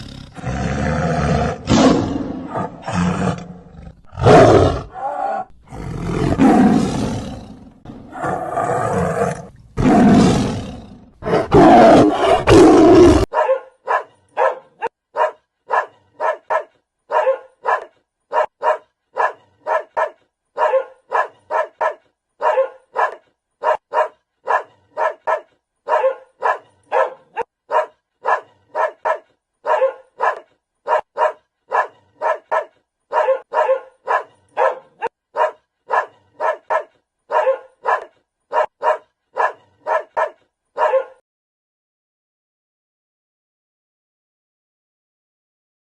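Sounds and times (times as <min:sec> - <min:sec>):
lion roaring: 0:00.0 - 0:13.3
dog barking: 0:13.1 - 0:41.2.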